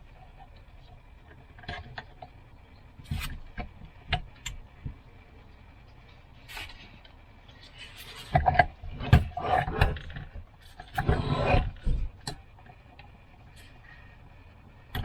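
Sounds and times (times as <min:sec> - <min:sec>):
rattling scrape: 0:10.9 - 0:12.0.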